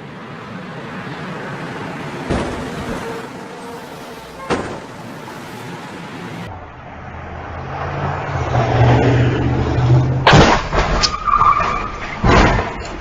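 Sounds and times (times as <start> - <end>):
heavy bang: 2.3 - 3.0.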